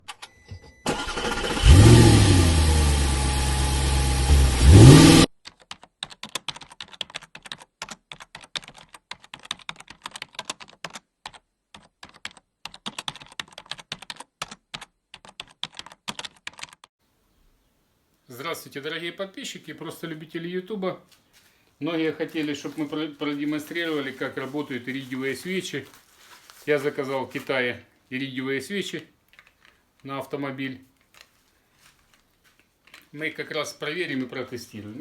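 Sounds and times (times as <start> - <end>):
car engine revving: 1.0 - 5.3
quick irregular clicks: 29.3 - 30.1.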